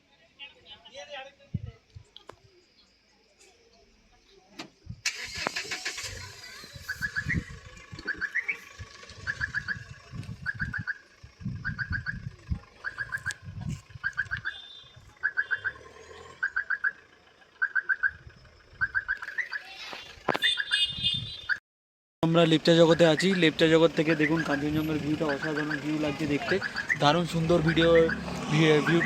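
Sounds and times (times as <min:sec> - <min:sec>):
low rumbling bursts: 0:06.2 - 0:15.2
bird call with clipped notes: 0:06.9 - 0:11.0, 0:12.8 - 0:13.4, 0:14.0 - 0:15.8, 0:16.4 - 0:17.0, 0:17.6 - 0:18.2, 0:18.8 - 0:21.6, 0:25.3 - 0:25.9.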